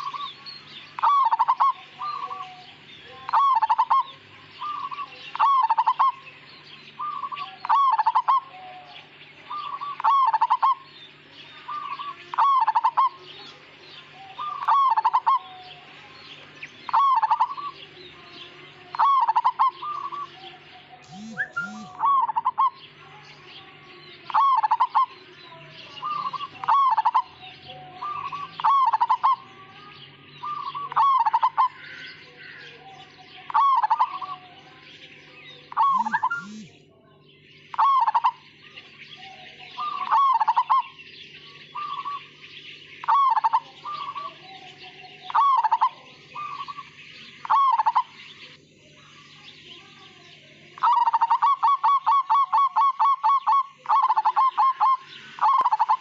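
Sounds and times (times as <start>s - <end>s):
dove cooing: 0.0s - 6.4s, 7.0s - 10.9s, 11.6s - 23.0s, 24.2s - 29.7s, 30.3s - 34.8s, 35.6s - 36.8s, 37.7s - 38.4s, 39.1s - 48.5s, 50.8s - 56.0s.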